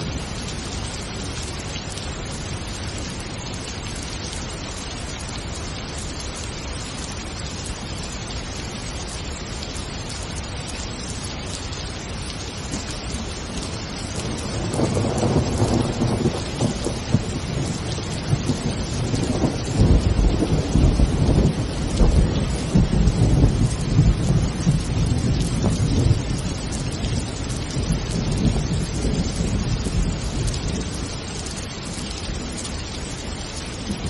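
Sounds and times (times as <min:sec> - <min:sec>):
rain hissing: 0:00.0 - 0:34.0
thunder rumbling: 0:12.7 - 0:31.0.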